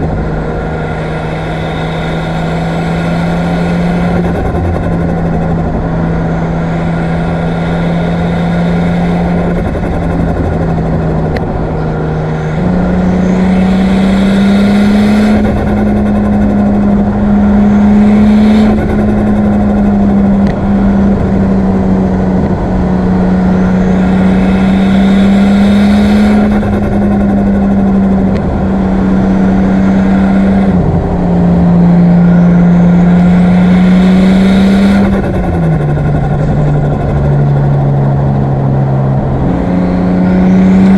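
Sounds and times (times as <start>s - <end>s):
car engine running: 0.0s - 40.9s.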